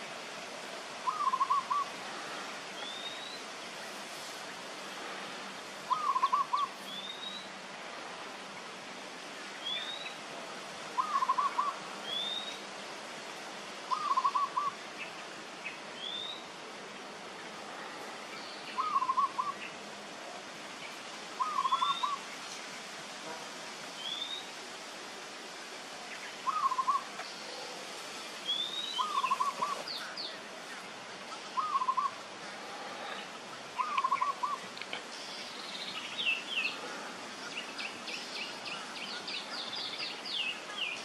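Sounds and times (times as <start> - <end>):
bird hooting notes: 1.0 - 1.9, 5.9 - 6.8, 11.0 - 11.8, 13.9 - 14.8, 18.8 - 19.6, 21.4 - 22.2, 26.4 - 27.5, 29.0 - 30.0, 31.6 - 32.2, 33.8 - 34.7.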